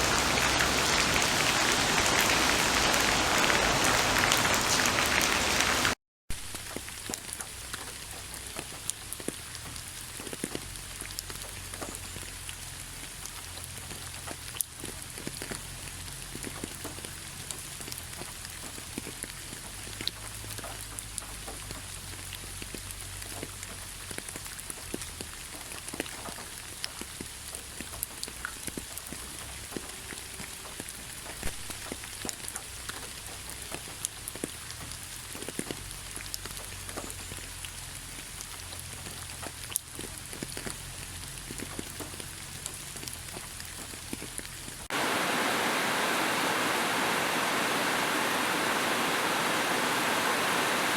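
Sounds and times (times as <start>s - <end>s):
rain drops striking a surface: 0.0s - 50.9s
steady rushing noise: 44.9s - 50.9s.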